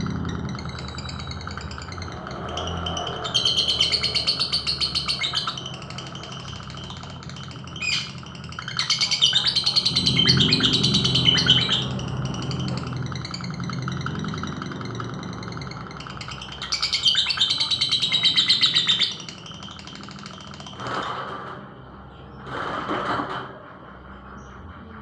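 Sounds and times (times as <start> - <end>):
bird chirping: 0.0 - 21.0.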